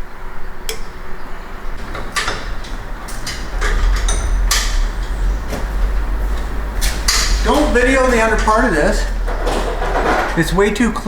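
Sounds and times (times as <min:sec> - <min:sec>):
low rumble: 0:01.7 - 0:11.0
sharp knocks and clatters: 0:01.8 - 0:11.0.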